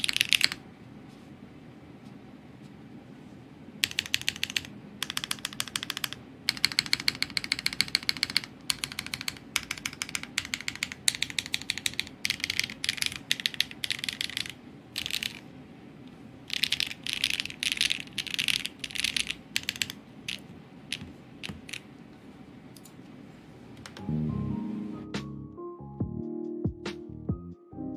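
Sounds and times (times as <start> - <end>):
mechanical keyboard typing: 0.0 - 0.6, 3.8 - 15.4, 16.5 - 21.9
music: 24.0 - 27.9.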